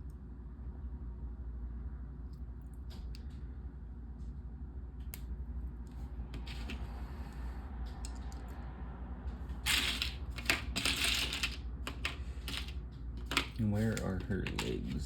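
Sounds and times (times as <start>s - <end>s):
plastic pieces clicking and clattering: 9.7s - 15.0s.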